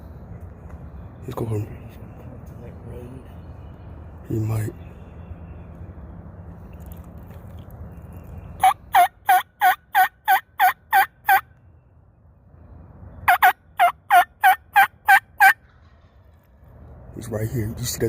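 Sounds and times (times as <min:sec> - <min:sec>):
turkey hen yelps on mouth call: 0:08.6 - 0:11.4, 0:13.3 - 0:15.6.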